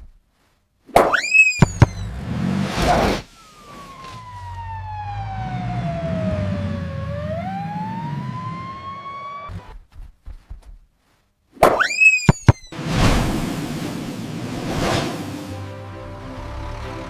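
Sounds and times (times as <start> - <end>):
gliding whistle-like tone: 1.1 - 2.1, 3.2 - 9.5, 11.8 - 12.7.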